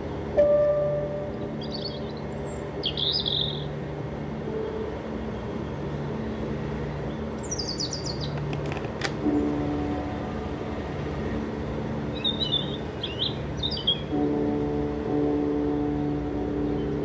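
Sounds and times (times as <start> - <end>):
birds chirping: 1.3 - 3.8, 6.8 - 8.6, 12.0 - 14.6.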